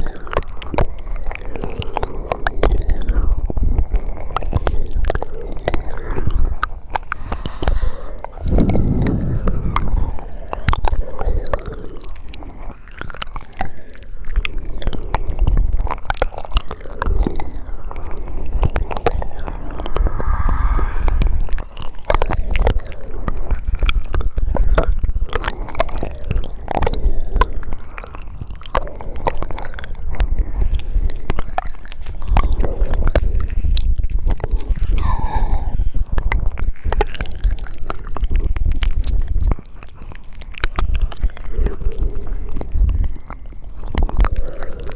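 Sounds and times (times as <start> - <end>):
wet mouth clicks and smacks: 0.0 - 44.9
heavy low rumble: 5.5 - 12.6, 18.2 - 23.7.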